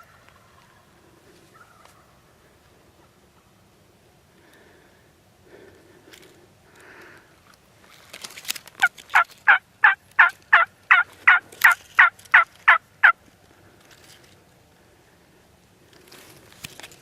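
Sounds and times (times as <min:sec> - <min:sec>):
turkey call yelps: 0:08.8 - 0:13.2.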